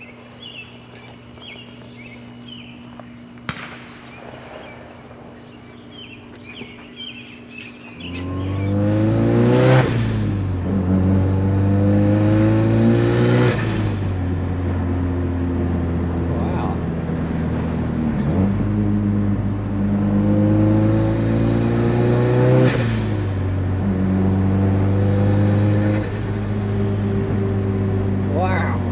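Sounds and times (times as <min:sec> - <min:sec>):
engine revving: 0:07.9 - 0:28.9.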